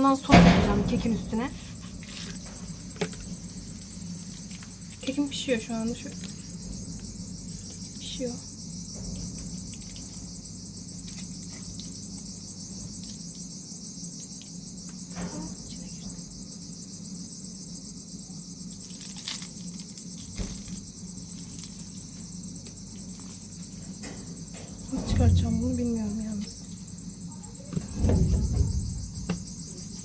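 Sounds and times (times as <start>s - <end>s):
crickets chirping: 0.0s - 30.0s
low steady hum: 20.8s - 30.0s
faint knocks: 27.6s - 30.0s.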